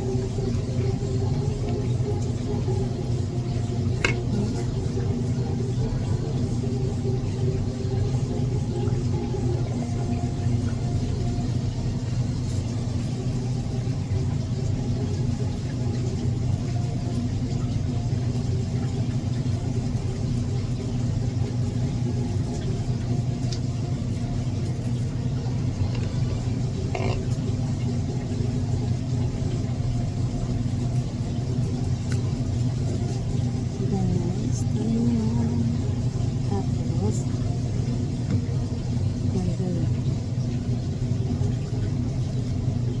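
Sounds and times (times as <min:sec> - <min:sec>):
low mechanical hum and rumble: 0:00.0 - 0:43.0.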